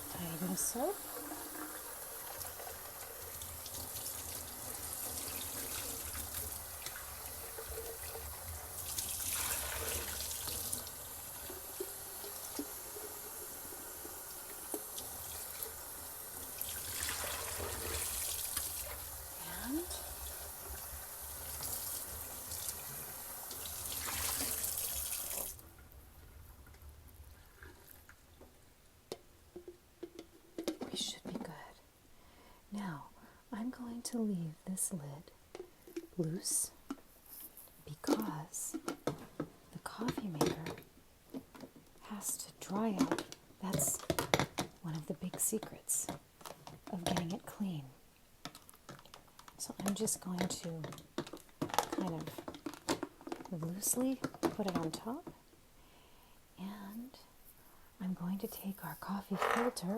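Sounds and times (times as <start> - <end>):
carafe being washed: 0.0 - 25.6
tap water running into sink: 0.0 - 25.6.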